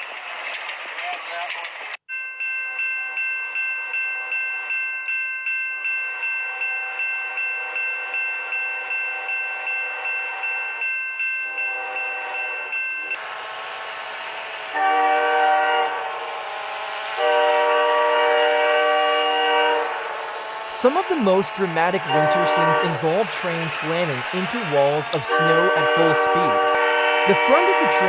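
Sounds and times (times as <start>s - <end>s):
train passing with rushing noise: 0.0s - 2.0s, 5.8s - 28.0s
railway crossing bell ringing: 1.0s - 28.0s
train chime horn blasts: 6.0s - 28.0s
train horn chord: 11.5s - 28.0s.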